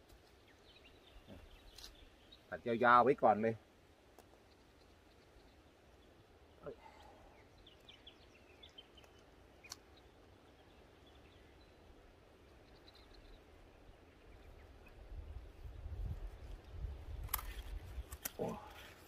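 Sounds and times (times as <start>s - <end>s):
faint bird chirps: 4.3s - 16.1s.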